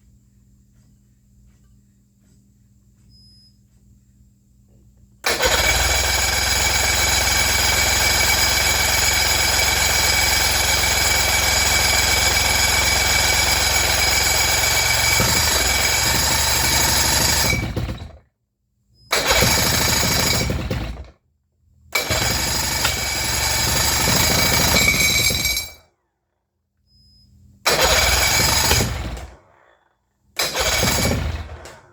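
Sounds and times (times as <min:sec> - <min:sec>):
outboard motor knocking: 0:05.3 - 0:18.1, 0:19.2 - 0:21.0, 0:27.7 - 0:29.2, 0:30.5 - 0:31.5.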